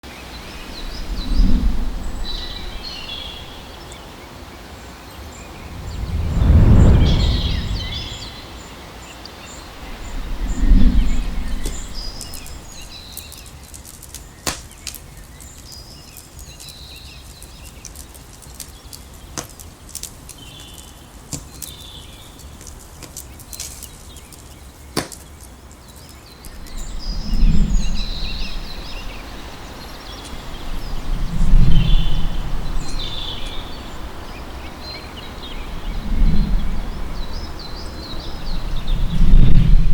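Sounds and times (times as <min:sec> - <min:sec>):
low whooshes: 0:05.2 - 0:08.4, 0:09.9 - 0:12.9.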